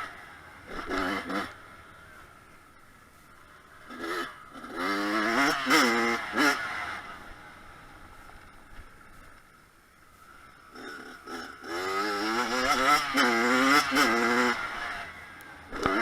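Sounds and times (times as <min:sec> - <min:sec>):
dirt bike engine revving: 0:00.0 - 0:02.2, 0:03.4 - 0:08.1, 0:10.5 - 0:16.0.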